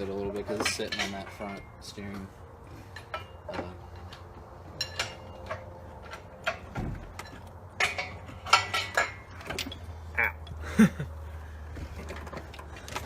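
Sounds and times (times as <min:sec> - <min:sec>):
metallic clanks and knocks: 0:00.0 - 0:10.6
dull thump: 0:06.7 - 0:07.3.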